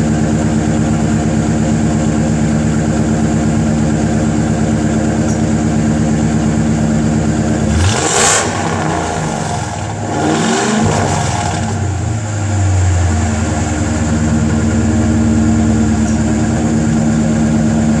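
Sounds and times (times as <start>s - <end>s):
car engine idling: 0.0s - 18.0s
engine revving: 7.5s - 16.1s.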